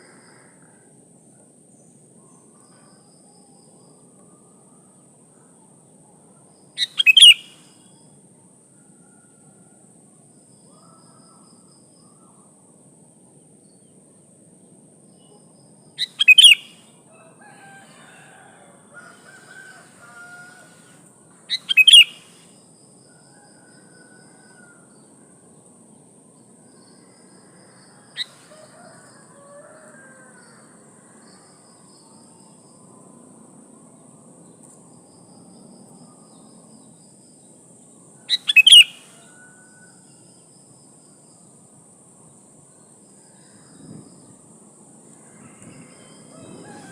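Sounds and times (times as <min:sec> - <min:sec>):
bulbul calling: 0:06.8 - 0:07.6, 0:16.0 - 0:16.8, 0:21.5 - 0:22.5, 0:38.3 - 0:39.1.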